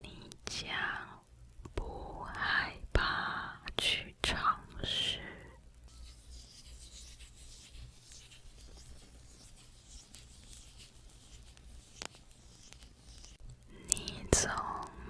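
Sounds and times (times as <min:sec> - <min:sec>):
soft scratching and rubbing: 0:04.2 - 0:15.0
small ticks: 0:05.4 - 0:15.0.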